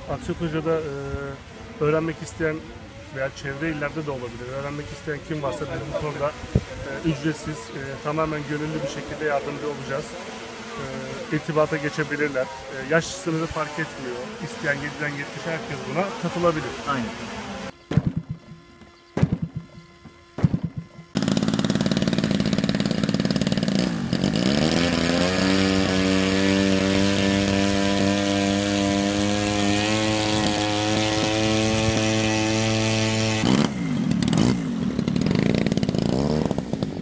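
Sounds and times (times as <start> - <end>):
model aircraft engine revving: 0.0 - 37.0.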